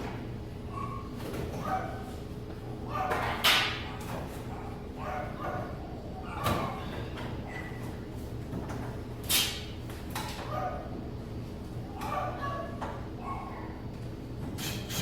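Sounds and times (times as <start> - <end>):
dog barking: 0.7 - 2.1, 2.9 - 6.8, 10.4 - 11.0, 11.9 - 13.8.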